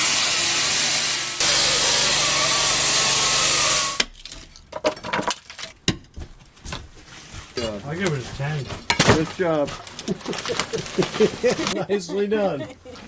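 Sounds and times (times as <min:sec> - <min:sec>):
power saw cutting: 0:00.0 - 0:04.2.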